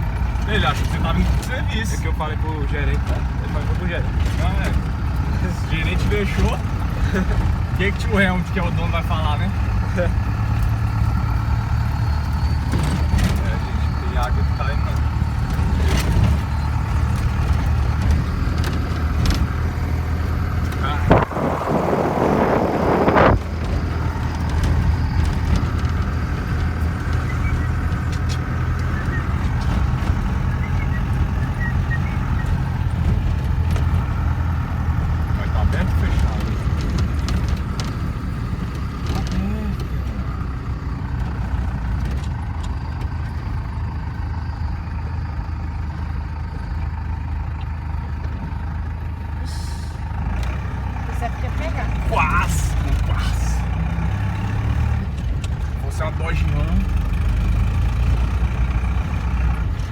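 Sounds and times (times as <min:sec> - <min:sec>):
vehicle engine running: 0:00.0 - 0:59.9
loud rushing noise: 0:21.0 - 0:23.6.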